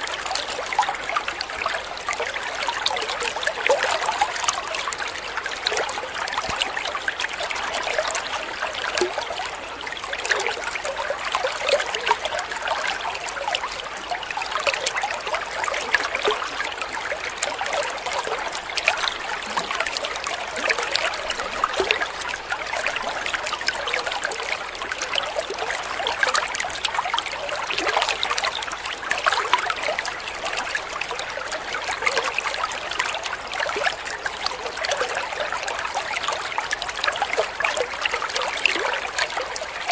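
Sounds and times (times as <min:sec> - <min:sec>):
small water splashes: 0:00.0 - 0:39.9
stream water babbling: 0:00.0 - 0:39.9.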